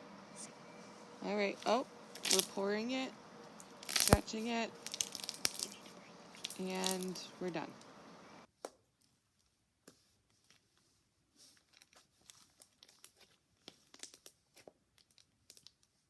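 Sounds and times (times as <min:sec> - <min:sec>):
slime clicking and crackling: 0:01.7 - 0:02.6, 0:03.6 - 0:07.2, 0:11.7 - 0:16.0.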